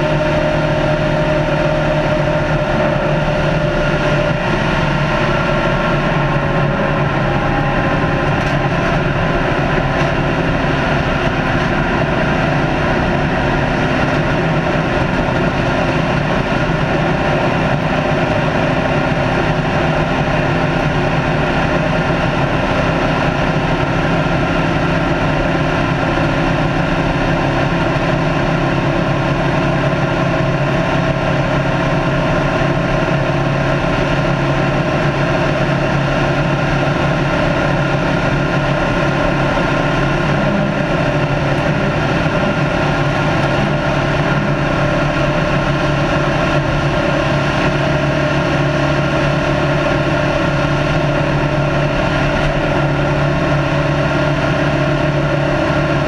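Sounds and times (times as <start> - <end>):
race car engine at high speed: 0.0 - 56.0
road noise: 0.0 - 56.0.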